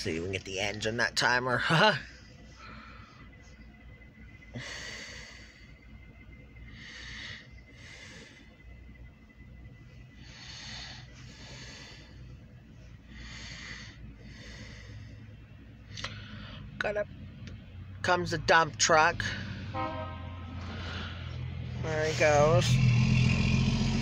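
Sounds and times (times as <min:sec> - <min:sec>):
faint low hum: 0:00.0 - 0:24.0
person breathing: 0:02.4 - 0:03.6, 0:04.5 - 0:06.0, 0:06.6 - 0:09.0, 0:10.1 - 0:16.8, 0:20.5 - 0:22.3.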